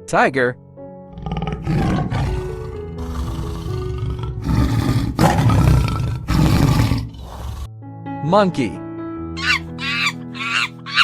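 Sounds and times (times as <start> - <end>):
tiger roaring: 1.1 - 7.7.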